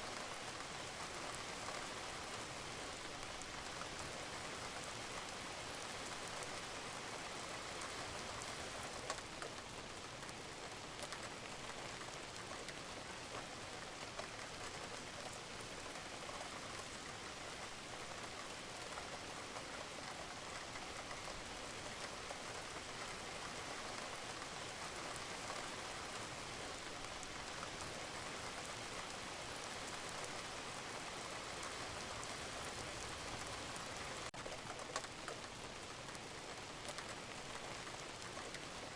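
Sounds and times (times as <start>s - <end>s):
rain falling on a roof: 0.0s - 38.9s
raindrops ticking: 7.8s - 38.9s.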